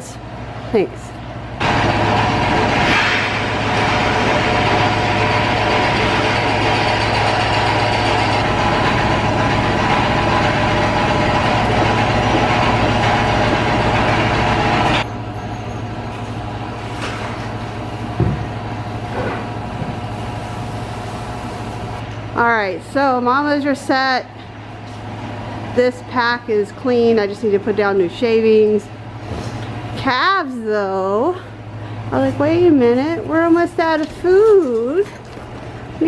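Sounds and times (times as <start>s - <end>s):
machine humming loudly: 1.4s - 22.4s.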